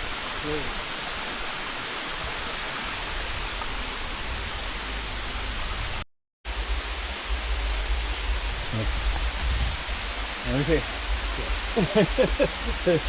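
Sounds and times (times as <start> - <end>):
waterfall rushing hiss: 0.0 - 13.0
deep rumble: 6.5 - 13.0.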